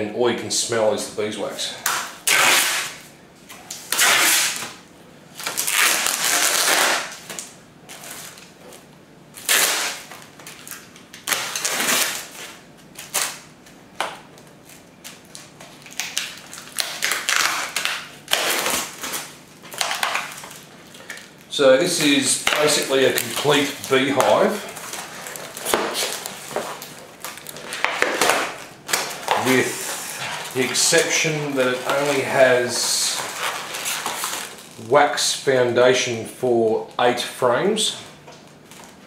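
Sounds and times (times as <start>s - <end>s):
packaging crinkling and rustling: 5.4s - 34.8s, 38.3s - 39.0s.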